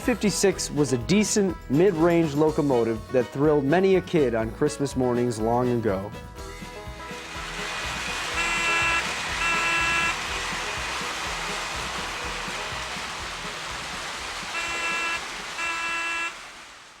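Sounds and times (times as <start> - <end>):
toy train running: 7.1 - 17.0
toy train whistle blasts: 7.6 - 11.1, 14.4 - 16.6.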